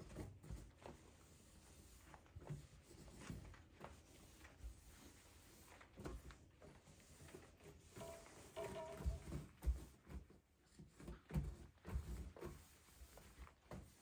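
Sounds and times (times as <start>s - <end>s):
soft knocks: 8.0s - 9.4s.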